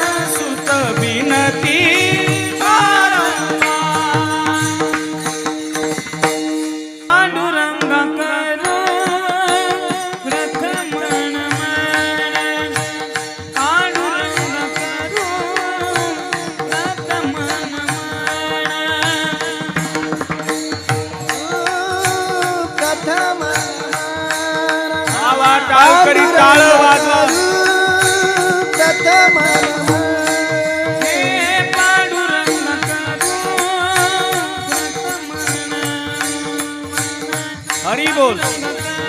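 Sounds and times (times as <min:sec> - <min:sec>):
man singing: 0:00.0 - 0:06.1, 0:07.1 - 0:39.0
harmonium drone: 0:00.0 - 0:39.0
hand drum beating: 0:08.7 - 0:39.0.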